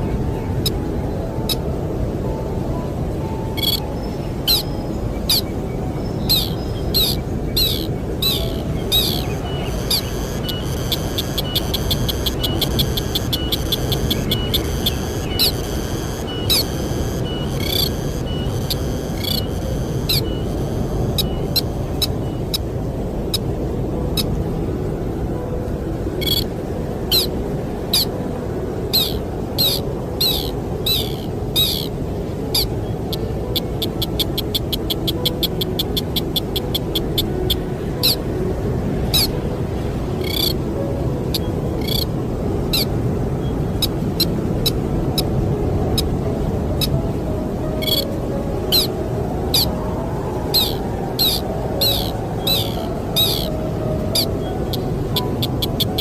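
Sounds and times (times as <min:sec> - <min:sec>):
rushing wind: 0:00.0 - 0:56.0
bird giving sharp calls: 0:06.3 - 0:16.8, 0:17.4 - 0:20.5, 0:29.0 - 0:31.9, 0:40.2 - 0:40.5, 0:50.6 - 0:53.5.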